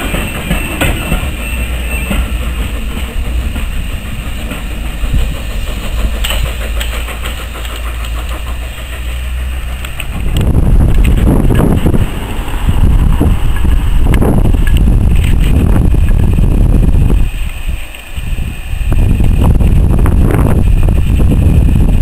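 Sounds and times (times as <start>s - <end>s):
faint rail clicks: 0.0s - 16.4s, 17.4s - 18.3s
train carriages rumbling: 0.0s - 22.0s.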